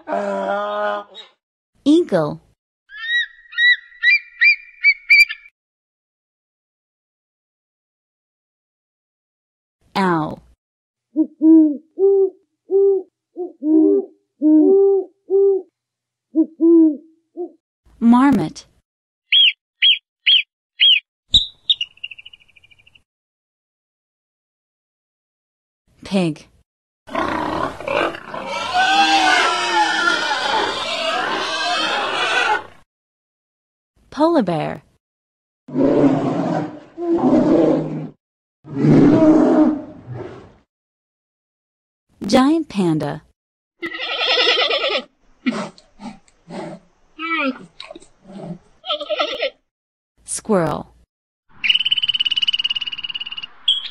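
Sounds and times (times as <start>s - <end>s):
polar bear calling: 2.9s - 5.4s
owl hooting: 2.9s - 5.5s, 11.1s - 15.7s, 16.3s - 17.6s, 19.3s - 22.7s, 51.6s - 53.9s.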